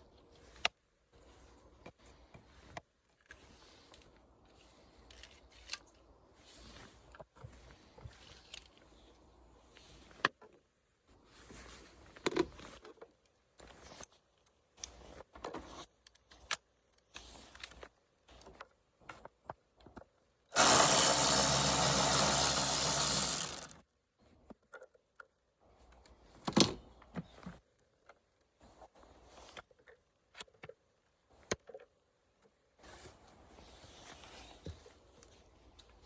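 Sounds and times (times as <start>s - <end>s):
loud noisy burst: 20.6s - 23.7s.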